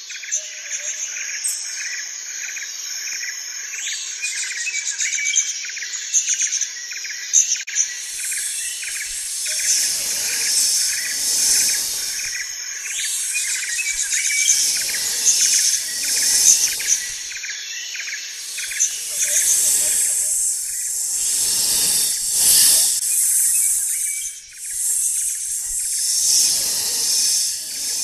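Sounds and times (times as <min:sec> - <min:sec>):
chirring insects: 0:00.0 - 0:28.0
breathy rushing noise: 0:08.0 - 0:17.4, 0:18.3 - 0:28.0.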